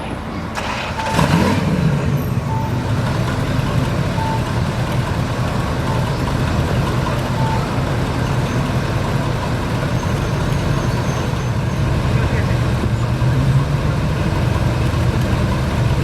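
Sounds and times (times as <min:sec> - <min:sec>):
vehicle engine idling: 0:00.0 - 0:16.0
reversing beeper: 0:02.2 - 0:03.0, 0:04.1 - 0:04.6, 0:07.2 - 0:08.6.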